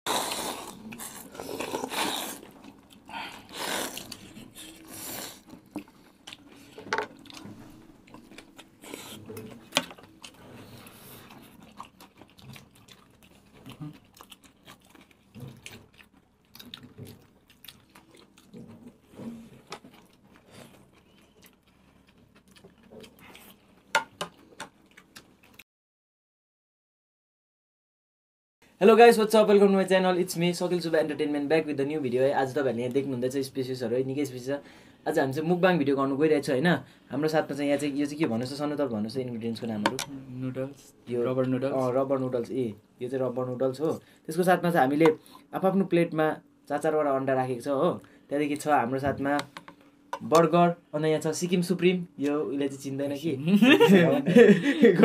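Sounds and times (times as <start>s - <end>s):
people chewing food: 0.1s - 25.6s.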